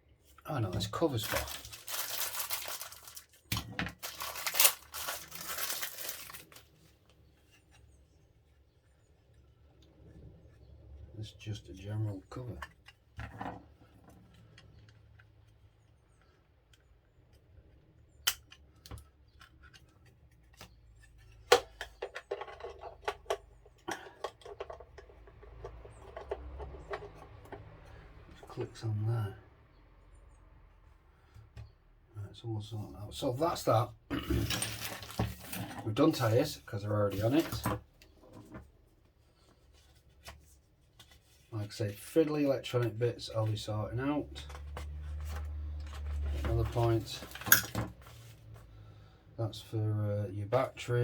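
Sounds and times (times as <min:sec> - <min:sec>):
plastic bag crinkling and tearing: 0:01.0 - 0:06.8, 0:34.4 - 0:35.7
sharp plastic crackle: 0:01.0 - 0:06.8.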